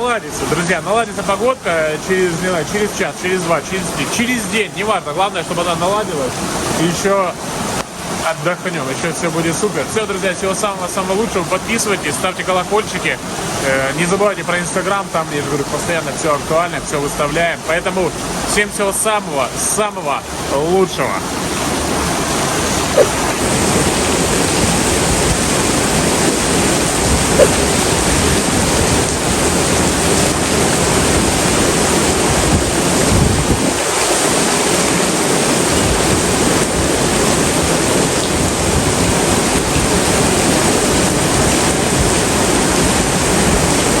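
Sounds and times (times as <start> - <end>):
rushing water: 0.0 - 44.0
wind buffeting microphone: 21.7 - 33.9.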